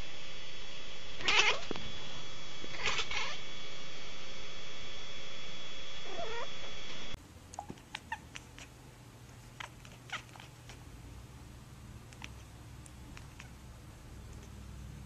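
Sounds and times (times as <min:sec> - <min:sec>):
steady high tone and hiss: 0:00.0 - 0:07.7
cat chirping: 0:01.2 - 0:01.7, 0:02.7 - 0:03.4, 0:06.0 - 0:06.5, 0:07.6 - 0:08.8, 0:09.4 - 0:10.8, 0:13.1 - 0:13.6
cat meowing: 0:01.2 - 0:01.7, 0:02.7 - 0:03.4, 0:06.0 - 0:06.5, 0:09.5 - 0:10.8, 0:13.2 - 0:13.6.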